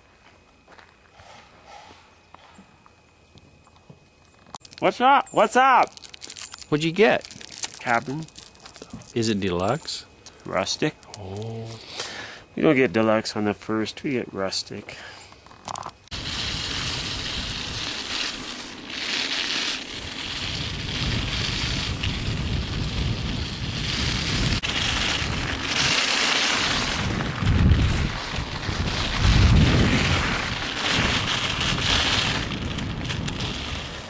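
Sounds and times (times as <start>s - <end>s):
wind on microphone: 16.1s - 18.4s, 20.0s - 34.0s.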